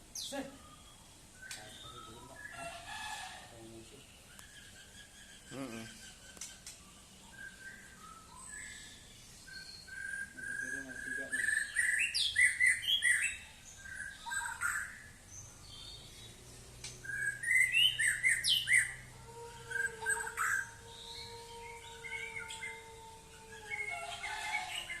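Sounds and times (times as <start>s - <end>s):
bird singing whistled phrases: 0.2s - 2.5s, 7.3s - 15.0s, 17.0s - 19.0s.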